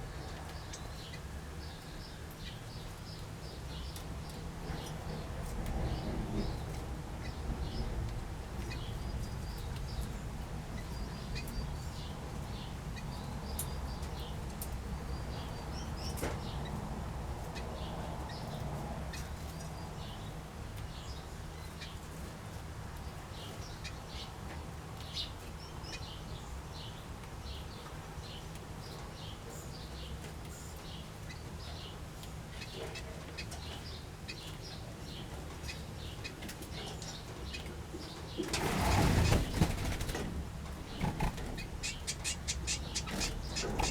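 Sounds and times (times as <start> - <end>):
small birds chirping: 23.0 - 43.9
wings fluttering: 38.4 - 43.9.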